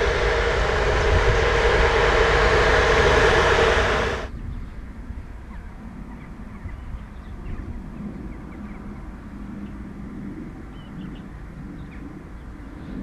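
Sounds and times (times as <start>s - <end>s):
distant freight train rumbling: 0.0s - 4.3s
faint hum: 0.0s - 4.3s.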